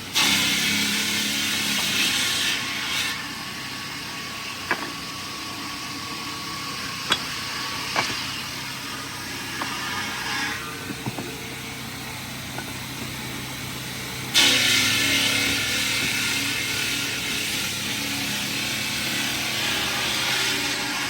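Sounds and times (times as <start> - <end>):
industrial machinery noise: 0.0 - 21.0
sharp knocks: 7.1 - 8.3.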